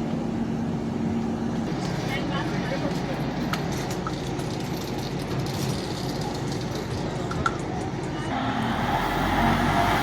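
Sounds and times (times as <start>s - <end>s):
vehicle traffic hum: 7.9s - 10.0s.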